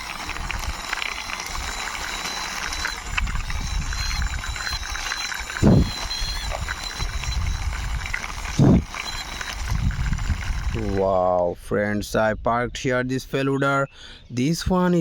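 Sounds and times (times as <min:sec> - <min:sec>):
toy wheels rolling and rattling: 0:00.0 - 0:11.1
loud thumps: 0:05.6 - 0:07.6.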